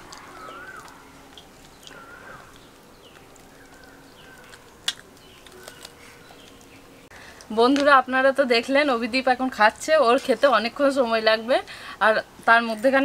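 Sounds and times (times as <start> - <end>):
bird whistled calls: 0.3 - 1.0.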